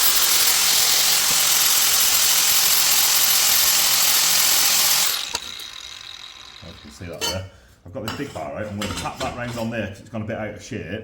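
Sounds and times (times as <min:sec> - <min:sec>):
grinder sanding metal: 0:00.0 - 0:07.3.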